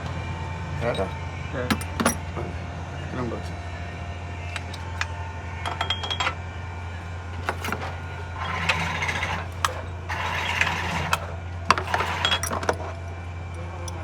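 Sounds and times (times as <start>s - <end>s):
steady low hum: 0.0s - 14.0s
metal tools clinking: 0.8s - 2.5s, 4.4s - 6.4s, 7.3s - 14.0s.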